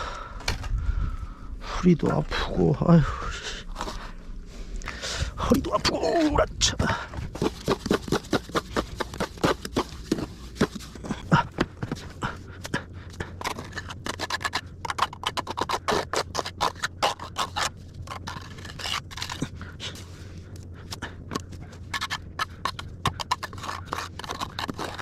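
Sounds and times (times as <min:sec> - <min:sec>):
tools scraping wet mortar: 0:05.5 - 0:25.0.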